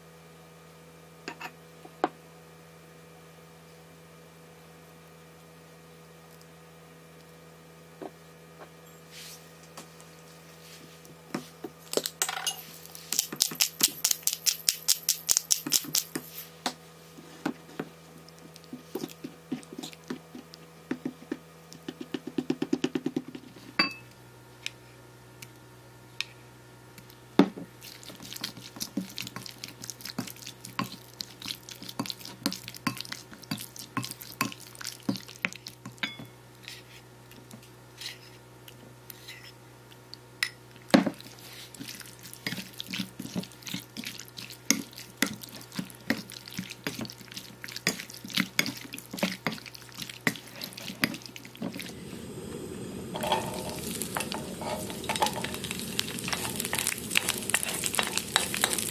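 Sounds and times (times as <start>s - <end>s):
spoon scraping ceramic bowl: 56.2s - 58.9s.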